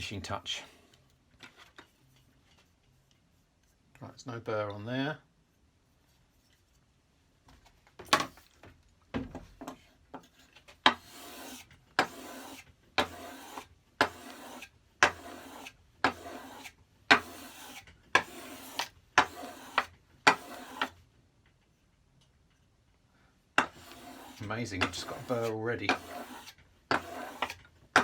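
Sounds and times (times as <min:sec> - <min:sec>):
blade rasping on abrasive paper: 0:10.9 - 0:21.0, 0:23.6 - 0:28.0.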